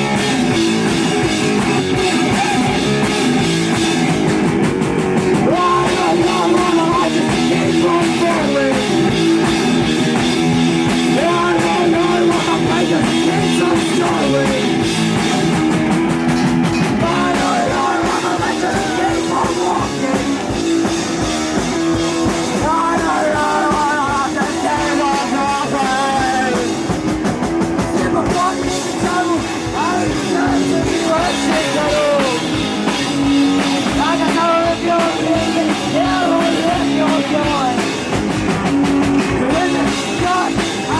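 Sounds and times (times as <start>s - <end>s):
rock band playing live: 0.0s - 40.9s
person singing: 5.4s - 9.2s, 11.1s - 14.9s, 16.9s - 26.9s, 27.8s - 32.6s, 33.7s - 38.0s, 39.2s - 40.9s.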